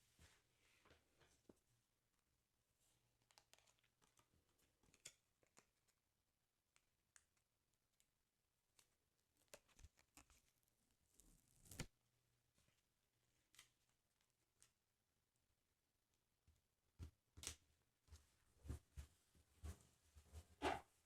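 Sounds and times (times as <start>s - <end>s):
crisp ticks of album pages: 3.2s - 6.0s, 6.7s - 8.1s, 8.7s - 10.6s, 13.3s - 14.8s
paper crinkling: 3.2s - 6.0s, 8.7s - 11.9s.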